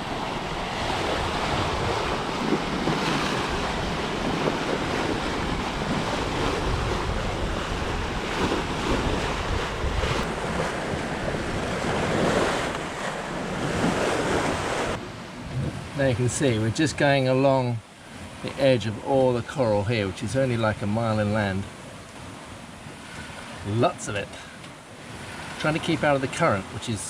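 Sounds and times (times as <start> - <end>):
wind buffeting microphone: 0.0 - 17.2
sea rushing along hull: 0.0 - 27.0.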